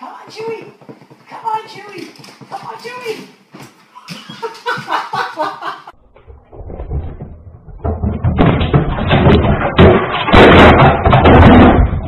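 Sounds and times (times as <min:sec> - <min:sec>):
heavy knocking and thumping: 0:06.0 - 0:12.0.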